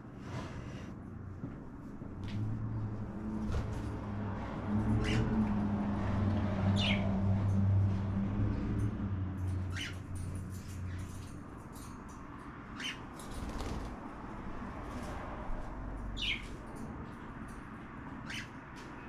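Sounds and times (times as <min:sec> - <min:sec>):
cockatiels chirping: 0:09.7 - 0:10.0, 0:12.8 - 0:13.0, 0:16.2 - 0:16.5, 0:18.2 - 0:18.5.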